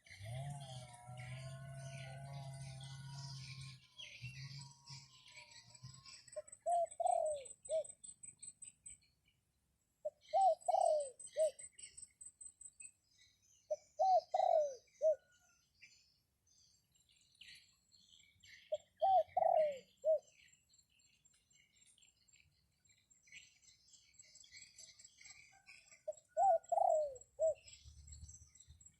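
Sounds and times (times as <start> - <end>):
dove cooing: 0.0 - 7.9, 10.0 - 11.6, 13.7 - 15.4, 18.7 - 20.3, 26.1 - 27.6
small birds chirping: 0.0 - 28.9.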